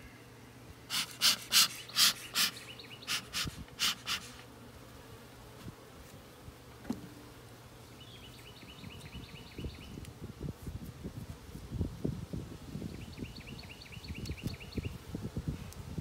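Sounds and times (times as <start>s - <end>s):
wind on microphone: 3.2s - 4.0s, 8.8s - 16.0s.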